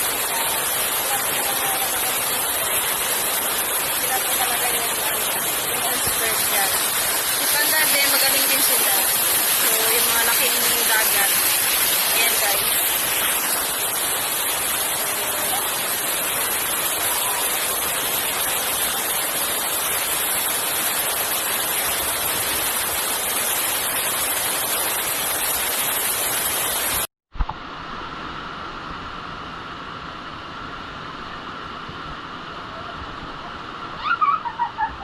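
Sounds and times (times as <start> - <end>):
rushing water: 0.0 - 35.0
steady hiss: 0.0 - 35.0.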